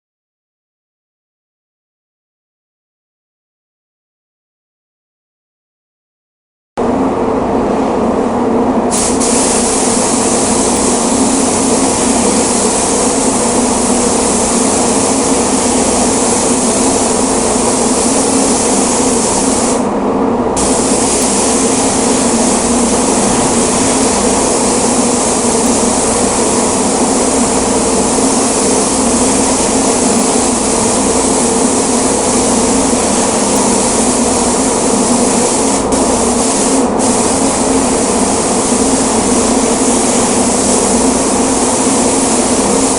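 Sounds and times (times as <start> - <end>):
steady low hum: 6.8 - 42.9
paint spray gun hissing: 8.9 - 19.8, 20.6 - 42.9.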